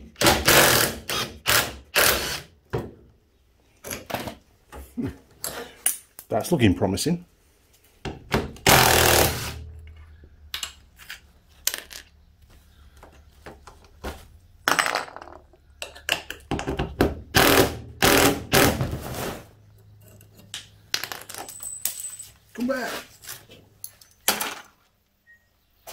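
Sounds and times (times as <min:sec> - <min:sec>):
metallic clinks of nuts and bolts: 0:19.9 - 0:22.6, 0:23.8 - 0:24.7.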